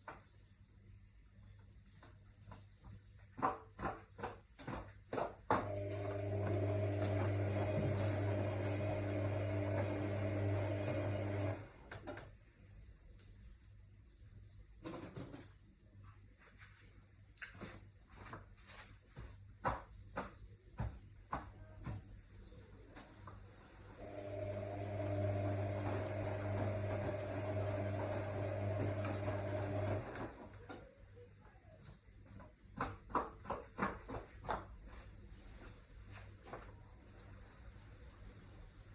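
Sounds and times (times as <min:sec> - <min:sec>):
washing machine humming: 0:05.5 - 0:12.6, 0:20.6 - 0:31.3.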